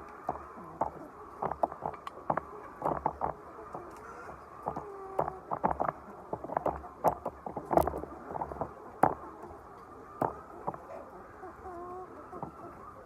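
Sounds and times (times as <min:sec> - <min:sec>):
hens clucking: 0:00.0 - 0:13.0
sharp taps and clicks: 0:00.3 - 0:09.2.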